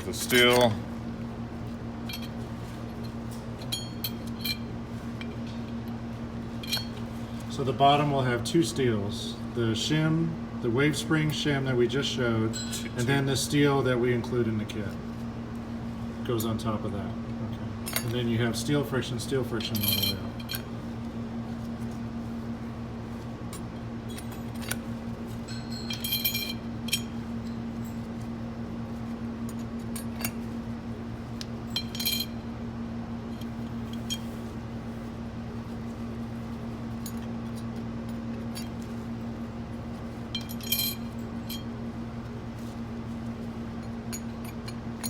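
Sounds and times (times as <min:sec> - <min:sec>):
metal clutch plates clinking: 0:00.0 - 0:00.8, 0:19.6 - 0:20.7, 0:24.1 - 0:28.1, 0:40.3 - 0:41.7
steady low hum: 0:00.0 - 0:45.0.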